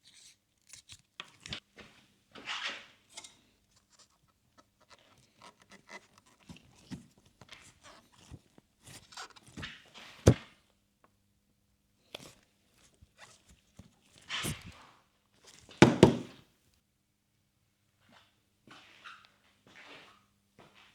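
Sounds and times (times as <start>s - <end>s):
knocks and handling clatter: 15.8s - 16.4s.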